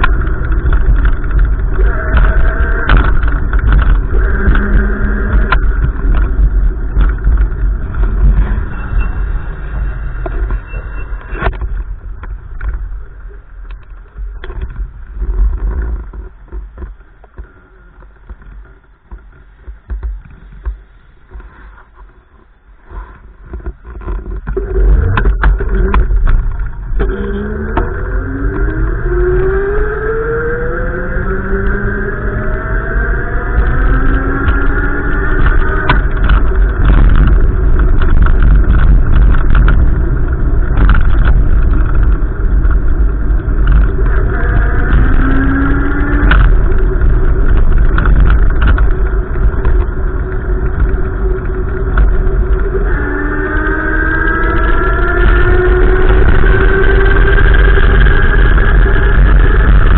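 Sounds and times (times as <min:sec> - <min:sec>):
vehicle low rumble: 0:00.0 - 0:59.9
engine accelerating: 0:24.5 - 0:59.9.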